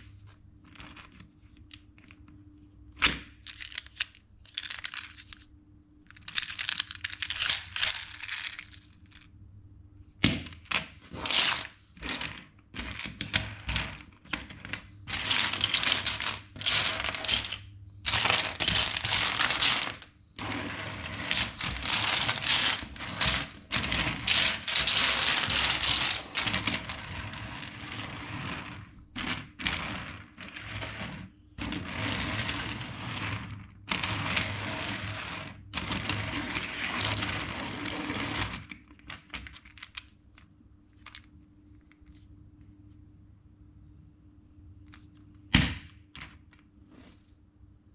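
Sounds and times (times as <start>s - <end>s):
plastic bricks clicking and rattling: 3.0s - 5.5s, 6.1s - 9.3s, 10.3s - 27.8s, 35.8s - 42.0s.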